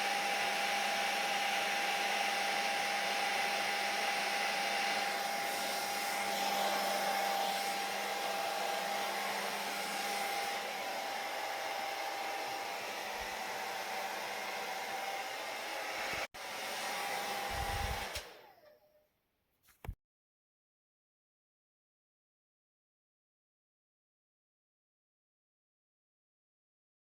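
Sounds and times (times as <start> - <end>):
hair dryer blowing: 0.0 - 18.9.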